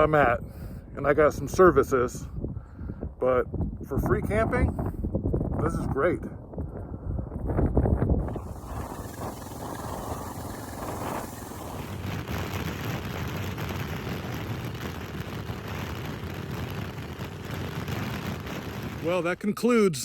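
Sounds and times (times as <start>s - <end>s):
wind rushing over microphone: 0.0s - 19.6s
motorcycle engine running: 8.2s - 19.2s.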